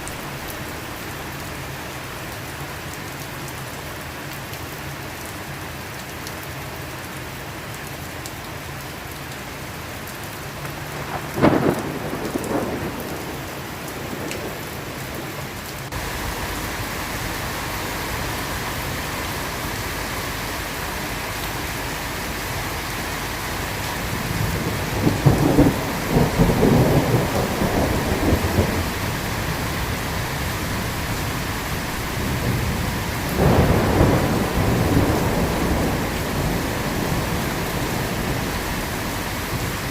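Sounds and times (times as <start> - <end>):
steady rain: 0.0 - 39.9
thunder clap: 11.0 - 14.6, 23.8 - 39.9
rolling thunder rumble: 11.0 - 15.3, 15.9 - 39.9.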